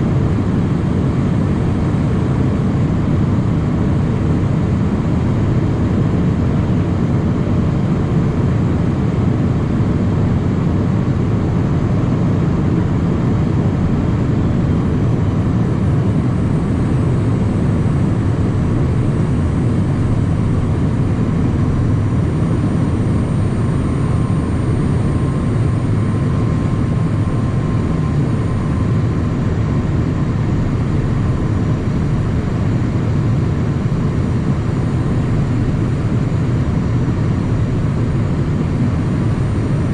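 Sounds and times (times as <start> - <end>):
turbofan engines: 0.0 - 39.9
faint high whine: 15.2 - 39.9.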